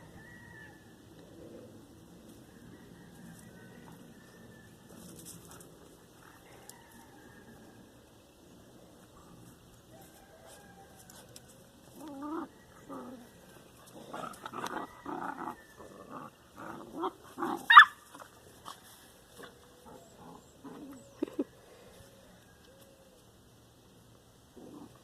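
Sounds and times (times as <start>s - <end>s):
puppy yelping: 17.7s - 18.0s.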